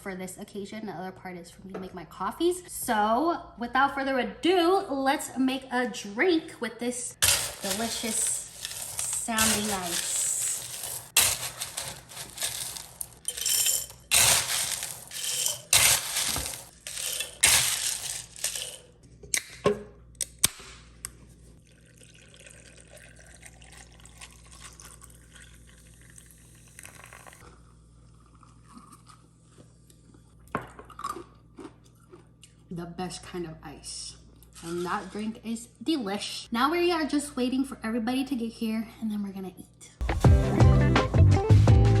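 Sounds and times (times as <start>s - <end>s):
ice rattling into a glass: 7.2s - 18.8s
ice clinking: 7.2s - 18.9s, 21.7s - 27.3s
liquid pouring over ice: 21.6s - 27.4s.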